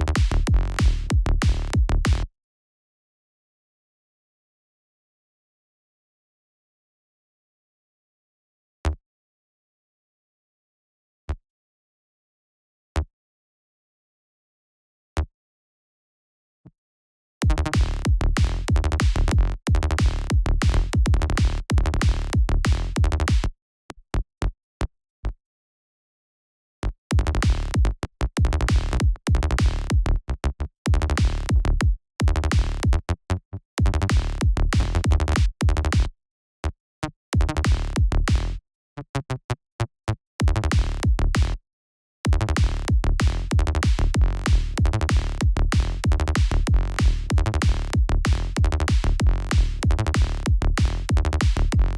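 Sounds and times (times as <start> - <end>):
electronic kick drum and synth bass: 0.0 - 2.3, 17.4 - 23.5, 27.2 - 30.1, 30.9 - 33.0, 33.8 - 36.1, 37.4 - 38.6, 40.4 - 41.6, 42.3 - 51.9.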